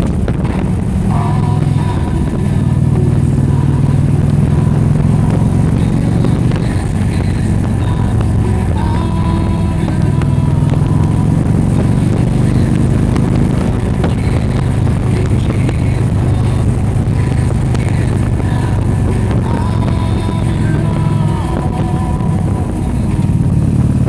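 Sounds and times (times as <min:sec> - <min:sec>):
vehicle engine droning: 0:00.0 - 0:24.0.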